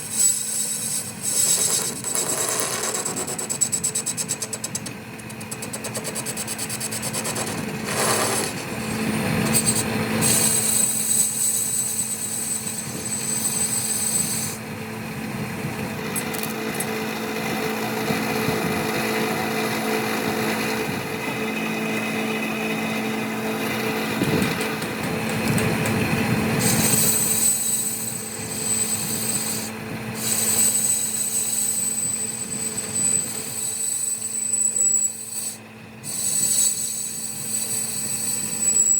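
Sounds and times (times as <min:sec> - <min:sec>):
cutting tool scraping metal: 0:00.0 - 0:14.6, 0:23.1 - 0:38.9
metalworking machine running: 0:00.0 - 0:38.9.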